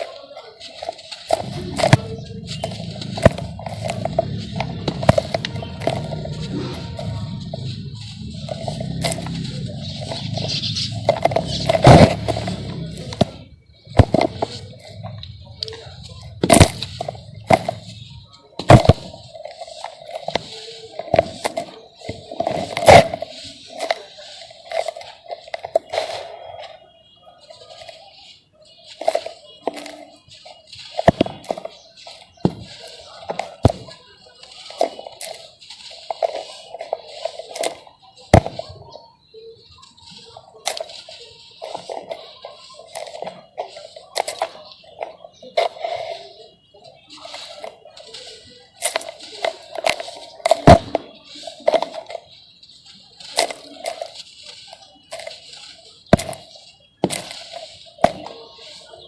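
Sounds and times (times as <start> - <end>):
gritty crunching and crumbling: 0.0 - 26.9, 27.5 - 39.0, 39.9 - 59.0
sand-cement chunks cracking: 0.1 - 26.6, 46.9 - 58.9.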